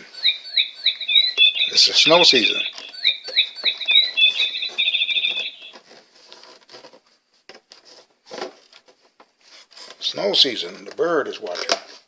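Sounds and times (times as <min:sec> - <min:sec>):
bird singing: 0:00.0 - 0:05.8.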